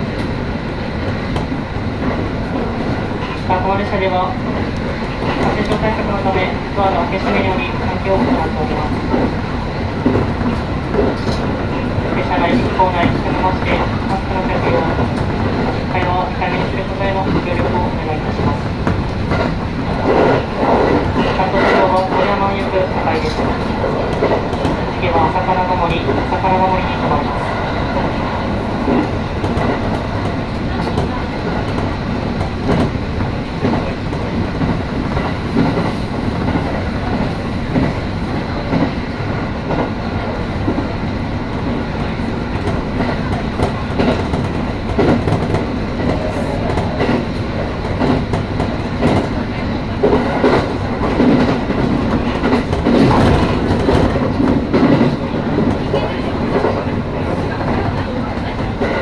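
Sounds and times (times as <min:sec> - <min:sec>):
train wheels rumbling: 0:00.0 - 0:59.0.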